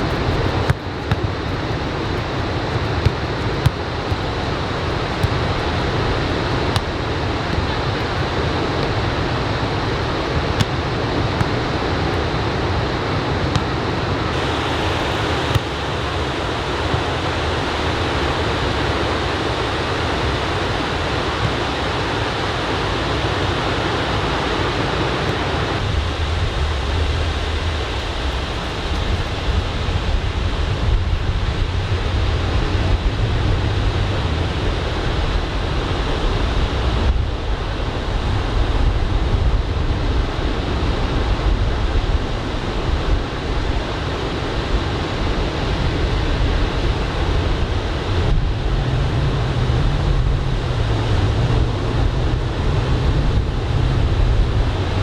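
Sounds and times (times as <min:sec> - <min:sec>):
ocean surf washing onto beach: 0:00.0 - 0:30.3
wind rumbling on microphone: 0:00.0 - 0:55.0.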